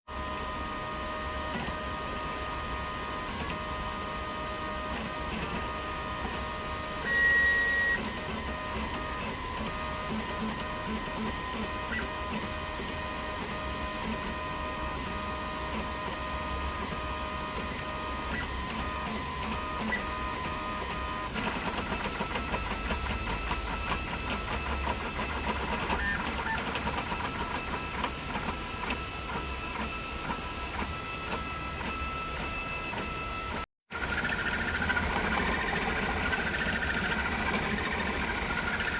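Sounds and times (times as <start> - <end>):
stepper motors whining: 1.4 - 38.9.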